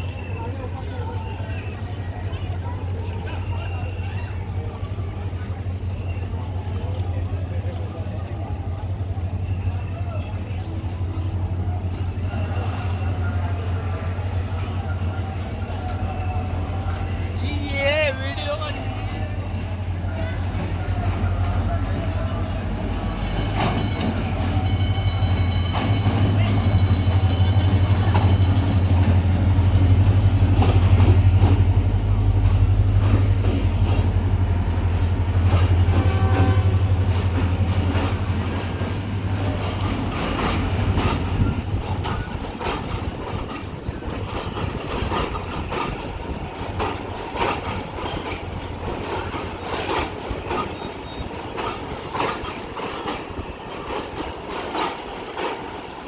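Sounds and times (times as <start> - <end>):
diesel locomotive engine drone: 0.0 - 56.0
train wheels clicking over rail joints: 18.8 - 56.0.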